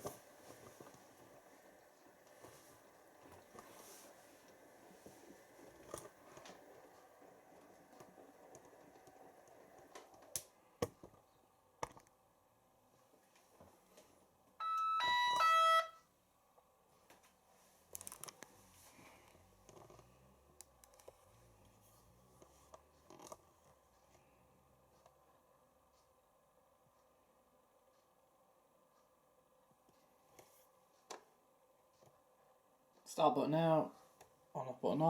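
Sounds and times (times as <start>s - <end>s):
washing machine beeper tune: 14.6s - 16.1s.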